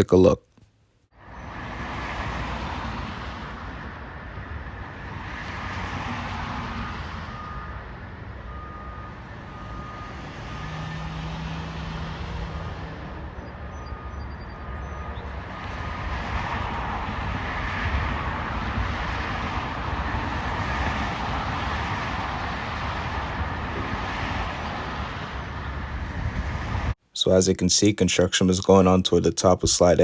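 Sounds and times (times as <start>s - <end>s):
vehicles passing on road: 1.1s - 27.4s
reversing alarm beeping: 6.8s - 11.4s, 13.4s - 16.0s.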